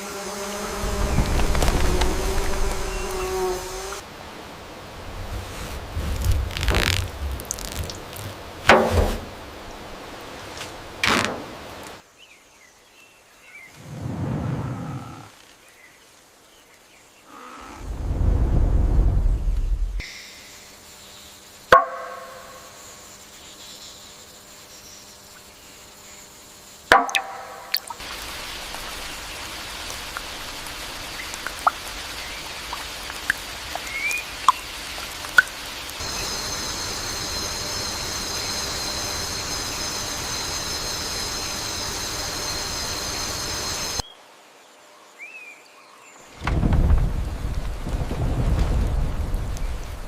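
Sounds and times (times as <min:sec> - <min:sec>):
rain hiss: 0:00.0 - 0:12.2, 0:13.4 - 0:21.7, 0:27.5 - 0:44.7, 0:46.2 - 0:50.0
low rumble of thunder: 0:00.8 - 0:03.4, 0:13.8 - 0:15.3, 0:17.7 - 0:20.0, 0:46.4 - 0:50.0
high steady buzz: 0:36.0 - 0:44.0.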